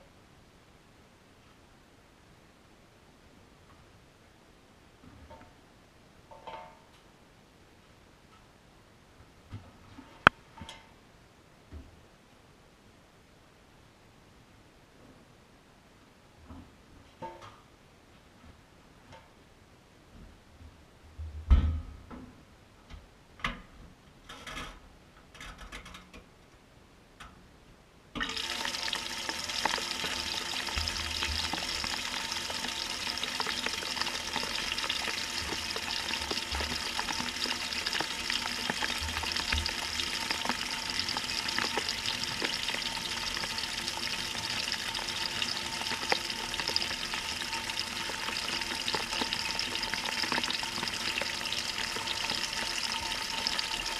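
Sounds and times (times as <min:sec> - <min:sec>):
water rushing into washer tub: 0:28.2 - 0:53.9.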